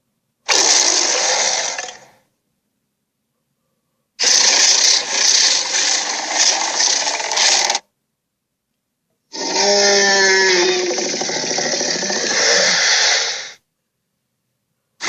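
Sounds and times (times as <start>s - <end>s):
harsh rasping creature roar: 0.5s - 2.2s, 4.2s - 7.8s, 9.3s - 13.6s
pitched creature roar sinking: 9.4s - 13.6s.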